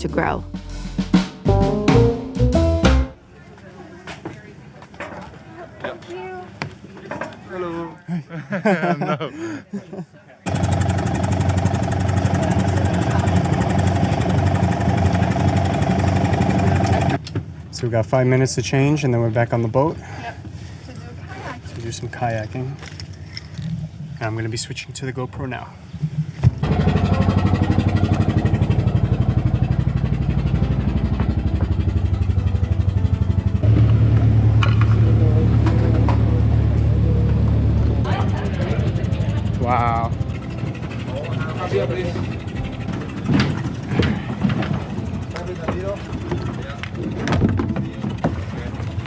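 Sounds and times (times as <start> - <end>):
boat engine running: 0.0 - 2.8, 10.5 - 17.2, 26.6 - 49.0.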